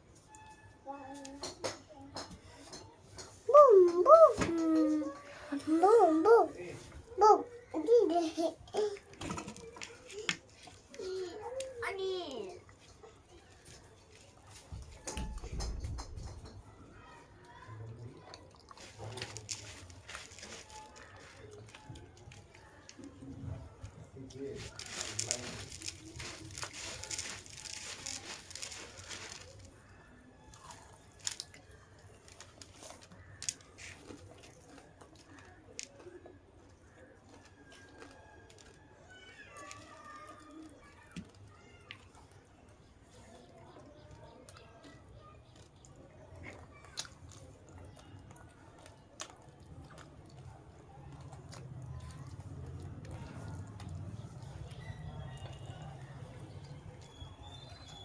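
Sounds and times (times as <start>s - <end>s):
person chewing crunchy food: 30.6s - 38.8s, 45.5s - 57.6s.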